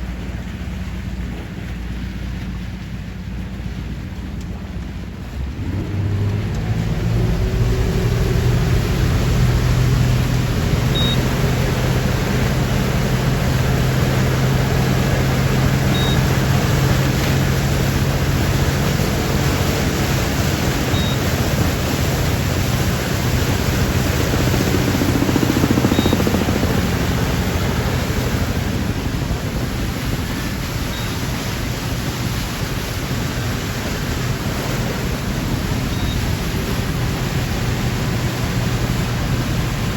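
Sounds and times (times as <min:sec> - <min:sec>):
motorboat engine hum: 0:00.0 - 0:39.9
rushing wind and water: 0:00.0 - 0:39.9.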